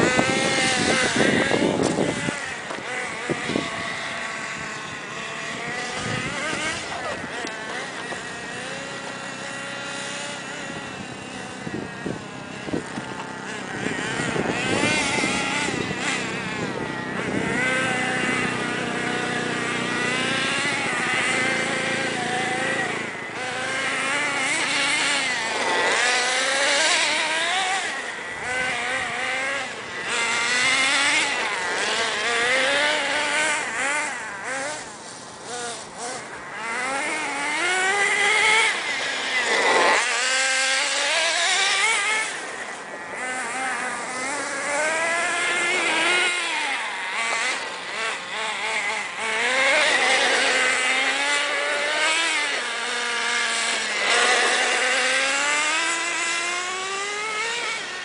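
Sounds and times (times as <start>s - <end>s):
small nitro engine revving: 0.0s - 58.0s.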